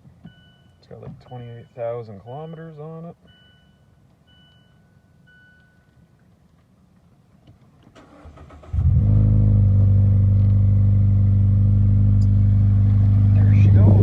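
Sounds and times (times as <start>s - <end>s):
car engine starting and running: 7.8s - 14.0s.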